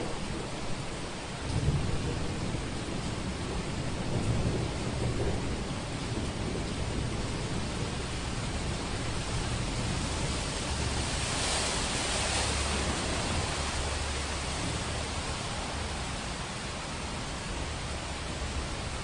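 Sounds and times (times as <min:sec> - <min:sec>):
low thunder rumble: 0:00.0 - 0:16.4
heavy rain hissing: 0:00.0 - 0:19.0.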